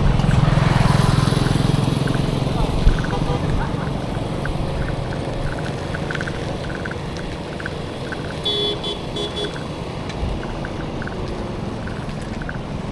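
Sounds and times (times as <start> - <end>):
road traffic: 0.0 - 12.9
vehicle horn tooting: 3.0 - 4.0, 8.4 - 9.8.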